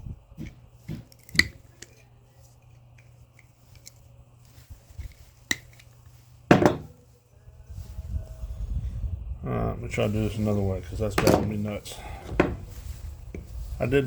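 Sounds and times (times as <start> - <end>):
steady low hum: 0.0 - 14.0
light taps and handling noise: 0.4 - 7.2, 11.0 - 14.0.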